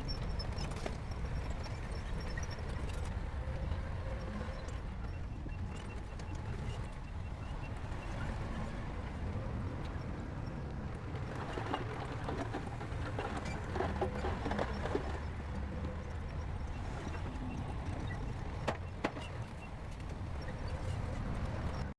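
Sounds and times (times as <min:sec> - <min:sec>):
metallic clanks of tracks: 0:10.9 - 0:21.0.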